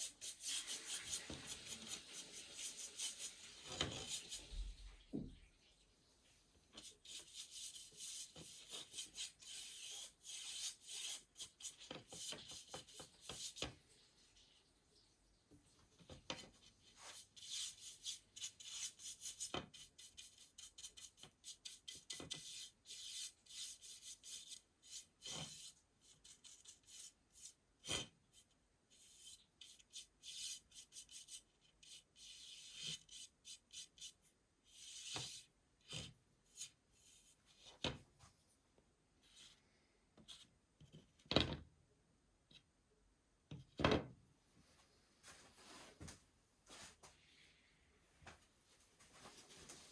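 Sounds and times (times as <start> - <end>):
paintbrush rasping on wood: 0.0 - 4.5, 6.8 - 13.6, 17.0 - 27.6, 29.0 - 35.4.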